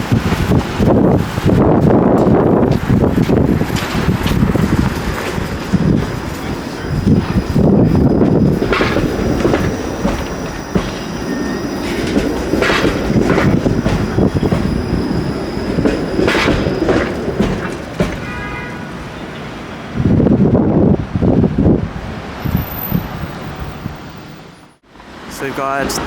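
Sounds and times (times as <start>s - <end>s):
streetcar wheels clacking: 0.0s - 24.4s
streetcar rumble: 0.0s - 26.0s
high wheel squeal: 5.5s - 18.5s, 22.4s - 24.8s.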